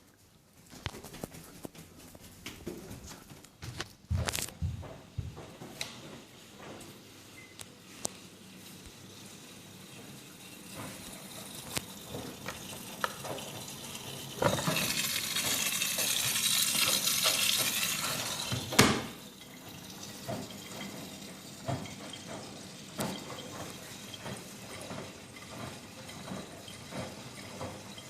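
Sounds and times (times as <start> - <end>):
washing machine click: 18.4 - 19.2.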